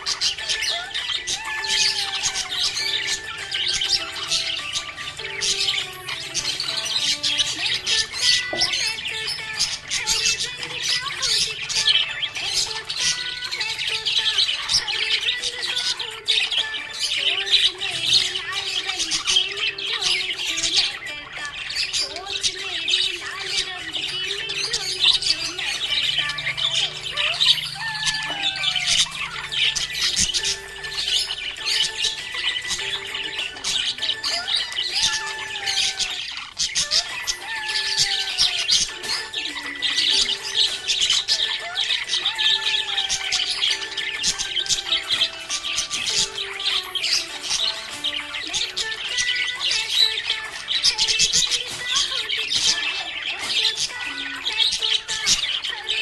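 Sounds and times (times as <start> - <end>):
budgerigars chirping and squawking: 0.0 - 56.0
slow melody: 25.8 - 35.6.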